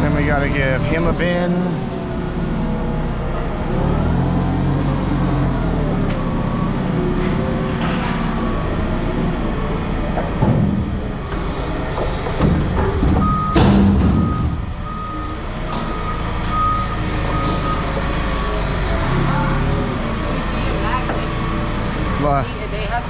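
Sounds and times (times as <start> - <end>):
diesel machinery running: 0.0 - 23.0
reversing alarm beeping: 5.2 - 10.1, 11.2 - 23.0
loud metal clanks: 7.6 - 8.7, 10.1 - 14.8.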